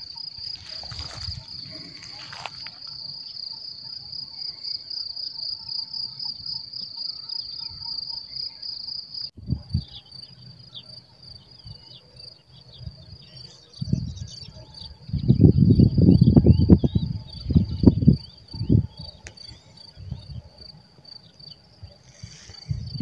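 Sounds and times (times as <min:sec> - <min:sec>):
rustling: 0:00.0 - 0:03.0
insects chirring: 0:00.0 - 0:23.0.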